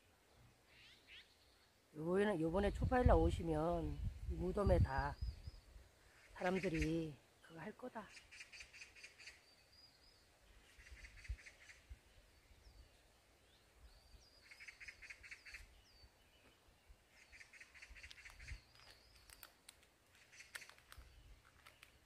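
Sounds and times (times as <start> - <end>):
bird trills: 14.4 - 16.0
thin whistled bird notes: 17.2 - 22.0.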